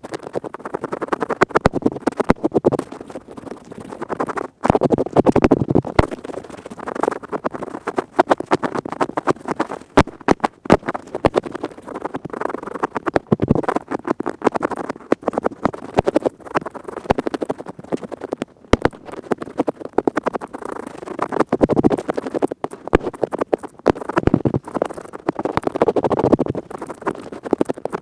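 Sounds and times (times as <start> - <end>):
earpick scratching inside ear: 0.1 - 28.0.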